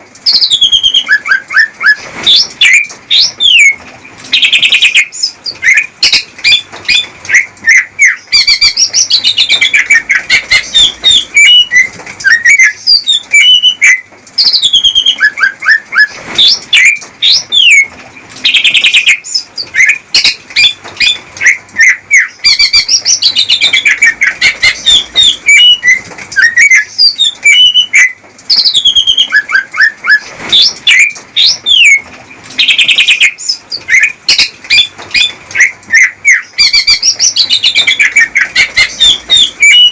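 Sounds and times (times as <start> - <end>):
bird singing chirps and trills: 0.2 - 39.9.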